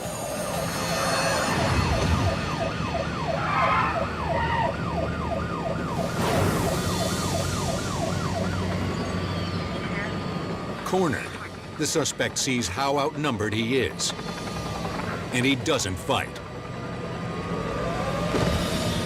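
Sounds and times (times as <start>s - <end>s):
police sirens yelping: 1.1s - 12.0s, 17.0s - 19.0s.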